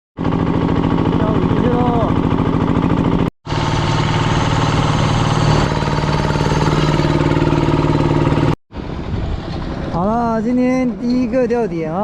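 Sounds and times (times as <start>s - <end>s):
engine running steadily: 0.2s - 12.0s.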